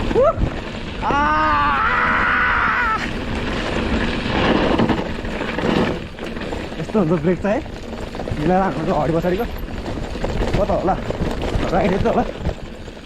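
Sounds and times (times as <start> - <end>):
tyres on gravel: 0.0 - 13.0
person yelling: 1.0 - 3.1.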